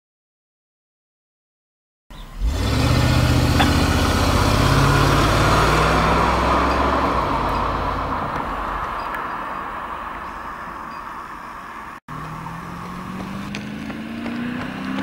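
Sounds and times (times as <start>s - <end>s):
car engine accelerating past: 2.2s - 10.6s, 12.1s - 15.0s.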